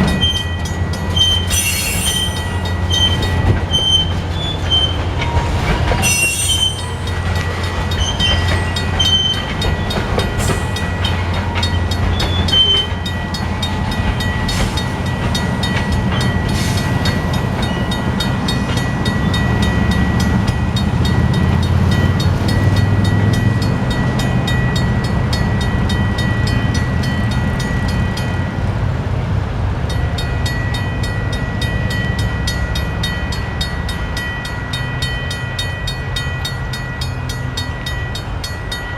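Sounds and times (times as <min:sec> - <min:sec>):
train wheel squeals: 0:00.0 - 0:23.4
freight train rumbling: 0:00.0 - 0:38.9.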